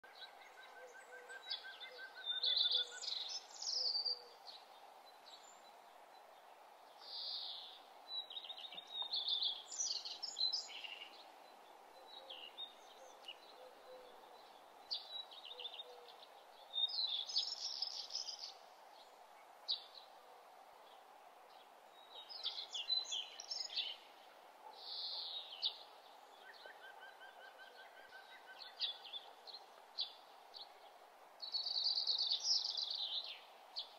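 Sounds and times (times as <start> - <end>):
faint background hiss: 0.0 - 33.9
songbirds chirping: 0.0 - 33.9.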